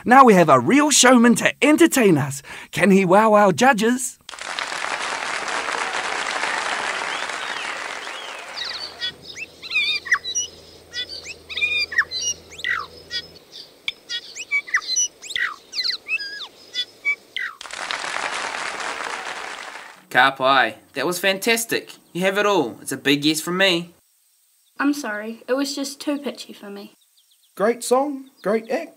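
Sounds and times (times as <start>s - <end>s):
applause: 4.3s - 9.2s, 17.6s - 20.0s
bird song whistles and clicks: 7.1s - 13.3s, 13.9s - 17.7s.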